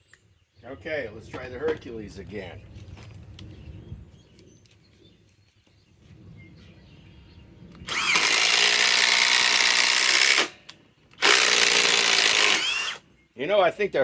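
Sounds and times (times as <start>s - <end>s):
impact driver hammering: 7.9s - 10.6s, 11.2s - 13.0s.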